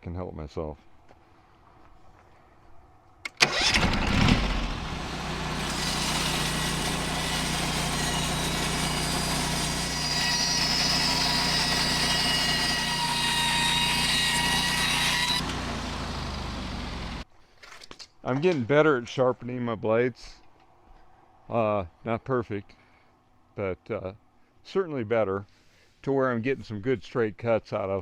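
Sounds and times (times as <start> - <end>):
sawmill engine running: 3.4 - 17.2.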